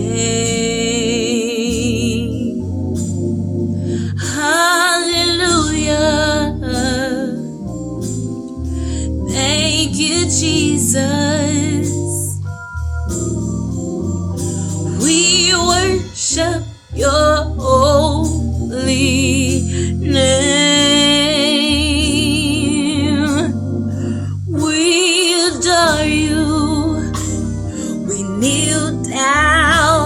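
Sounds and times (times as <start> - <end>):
singing with heavy vibrato: 0.0 - 2.6, 8.8 - 12.4, 14.4 - 30.0
low bass line: 0.0 - 30.0
organ chords: 0.0 - 30.0.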